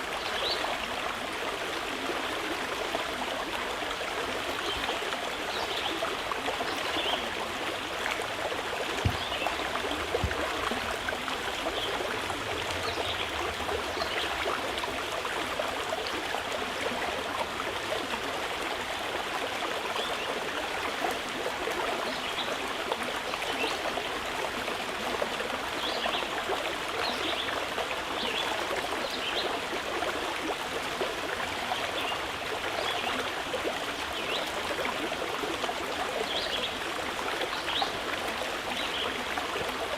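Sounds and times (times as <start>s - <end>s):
low knock: 9.0s - 10.9s.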